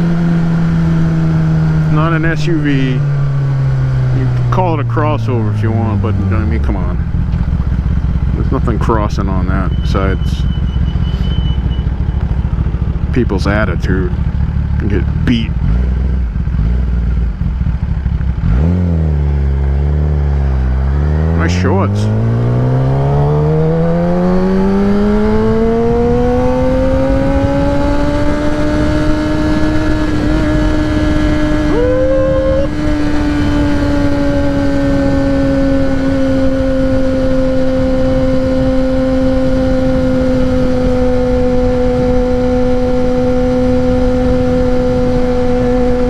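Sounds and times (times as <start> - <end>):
motorcycle engine revving: 0.0 - 46.0
wind on microphone: 22.0 - 46.0.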